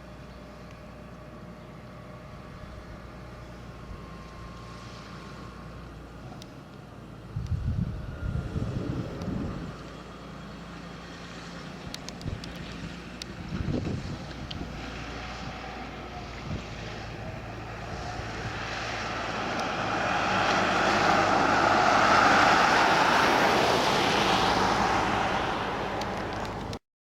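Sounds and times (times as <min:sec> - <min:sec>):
tractor engine running: 0:00.0 - 0:26.8
rushing noise: 0:13.8 - 0:26.8.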